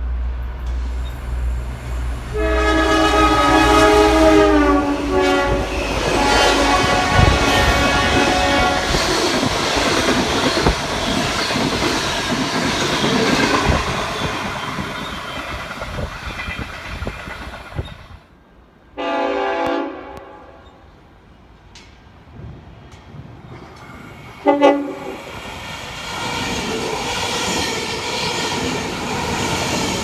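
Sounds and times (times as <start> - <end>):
train rumbling over rails: 0.0 - 30.0
train horn: 1.9 - 9.5, 18.9 - 20.8, 24.4 - 25.2.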